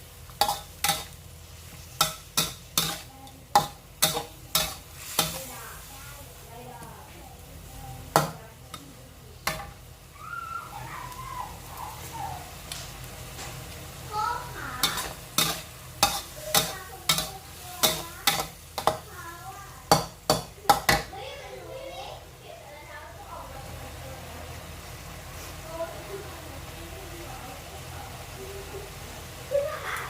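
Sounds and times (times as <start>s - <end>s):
stir-fry sizzling in a pan: 0.0s - 30.0s
metal spatula striking a pan: 0.3s - 1.2s, 1.9s - 5.5s, 8.1s - 9.8s, 14.8s - 19.2s, 19.8s - 21.2s.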